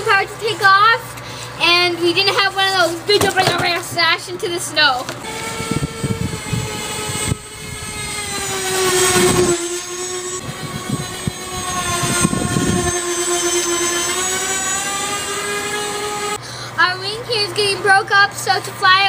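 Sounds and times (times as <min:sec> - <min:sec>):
electric ducted fans whining: 0:00.0 - 0:19.0
wind rumble on microphone: 0:05.2 - 0:09.6, 0:10.2 - 0:14.4.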